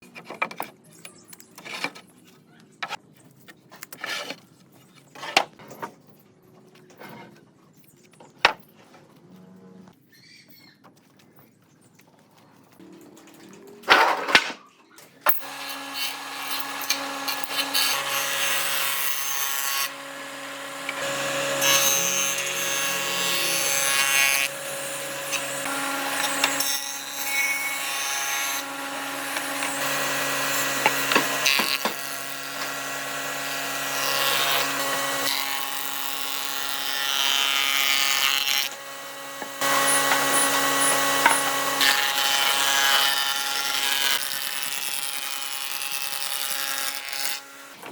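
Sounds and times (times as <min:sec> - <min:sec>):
power tool motor hum: 0:15.3 - 0:47.8
tool cutting wood: 0:15.3 - 0:47.9.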